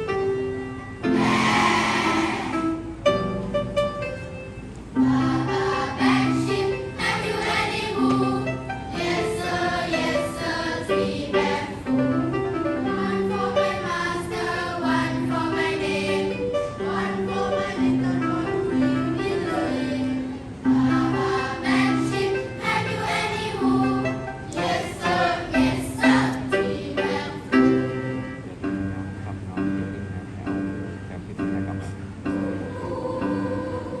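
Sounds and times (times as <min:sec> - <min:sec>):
held accompaniment notes: 0:00.0 - 0:34.0
choir singing in harmony: 0:01.0 - 0:02.9, 0:05.0 - 0:28.4, 0:32.3 - 0:34.0.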